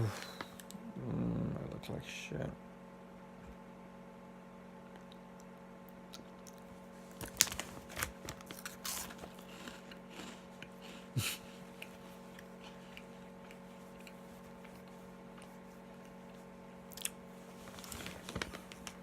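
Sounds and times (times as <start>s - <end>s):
person crunching snacks: 6.0s - 19.0s.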